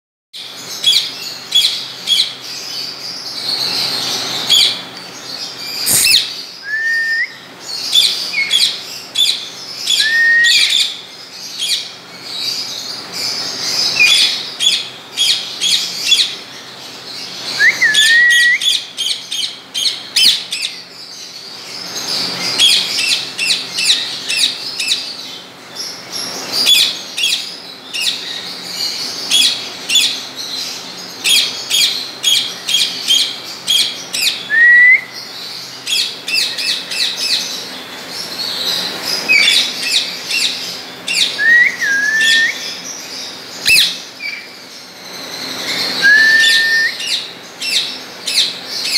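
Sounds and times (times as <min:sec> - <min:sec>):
birds chirping: 0:00.4 - 0:48.9
short rising whistle: 0:05.9 - 0:07.4, 0:46.0 - 0:47.0.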